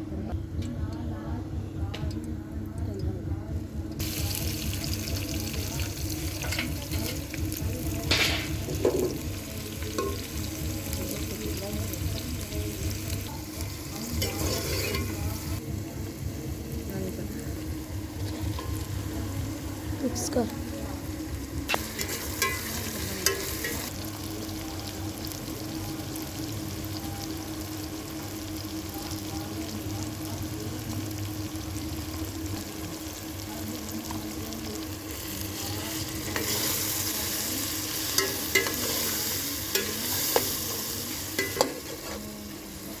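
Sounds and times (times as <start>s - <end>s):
steady low hum: 0.0s - 25.0s
okra sizzling in a pan: 4.0s - 43.0s
utensil scraping a pan: 14.1s - 15.6s, 38.0s - 42.4s.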